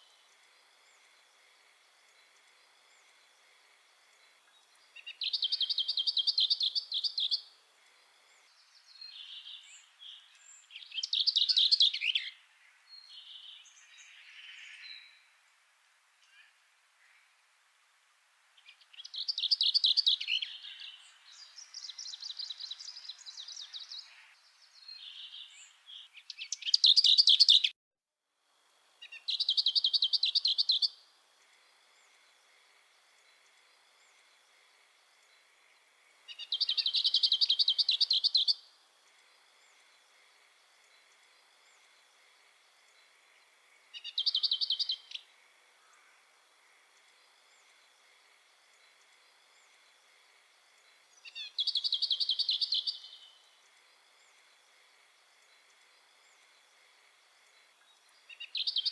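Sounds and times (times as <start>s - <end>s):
songbird trilling: 5.0s - 7.4s, 25.0s - 27.7s, 29.0s - 31.0s, 36.3s - 38.6s, 43.9s - 45.2s, 51.2s - 53.3s.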